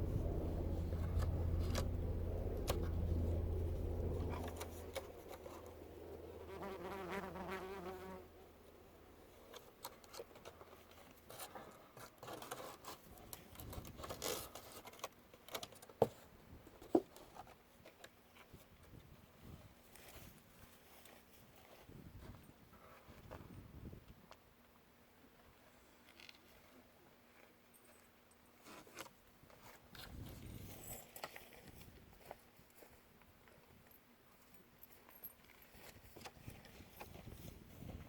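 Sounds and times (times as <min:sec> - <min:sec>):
helicopter drone: 0:00.0 - 0:06.6
small clicks and rustles: 0:09.4 - 0:16.2, 0:25.4 - 0:38.0.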